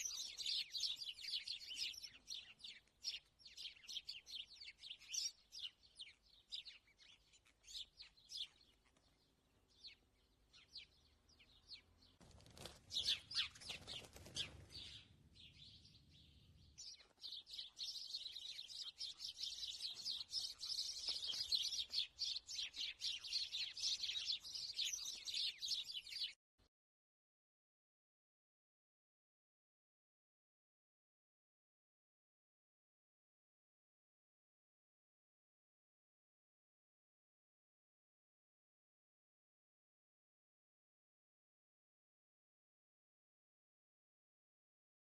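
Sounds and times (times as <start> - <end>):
small birds chirping: 0.0 - 26.4.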